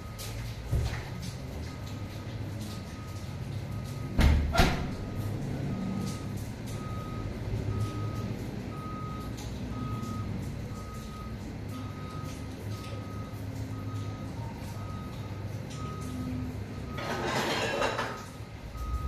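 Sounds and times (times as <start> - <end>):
low engine rumble: 0.0 - 19.0
truck reversing beeper: 1.7 - 19.0.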